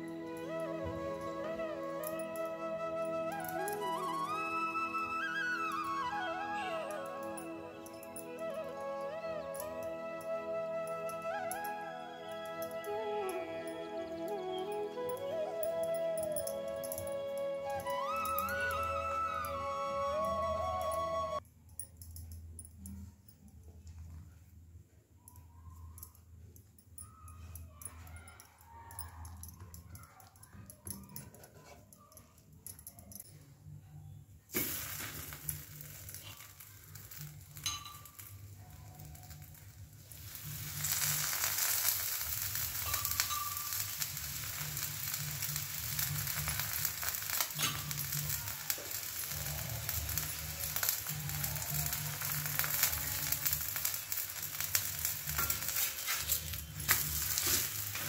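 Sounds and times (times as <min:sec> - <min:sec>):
flatbread sizzling in oil: 0:34.5 - 0:58.0.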